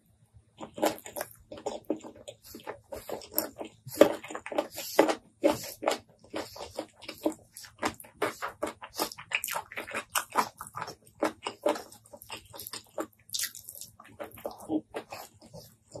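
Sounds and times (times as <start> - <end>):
fingers squishing through rice: 0.6 - 16.0
wet chewing and lip smacks: 0.6 - 16.0.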